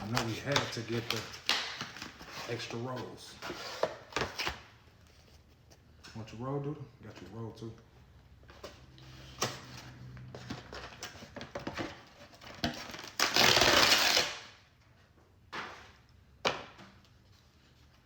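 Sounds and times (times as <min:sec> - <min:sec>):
food packaging clicks and rustles: 0:00.0 - 0:03.2.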